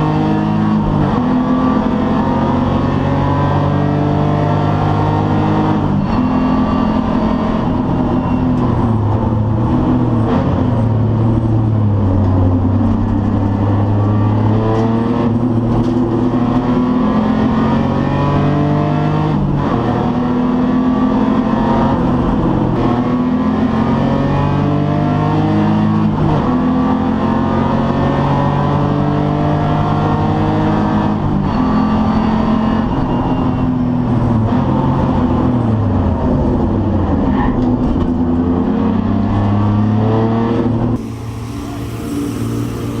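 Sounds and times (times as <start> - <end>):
race car engine accelerating: 0.0 - 43.0
hiss: 41.0 - 43.0.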